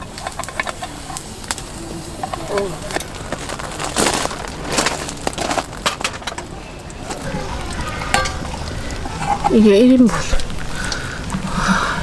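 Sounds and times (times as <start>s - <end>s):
objects knocking and clattering: 2.2s - 7.4s.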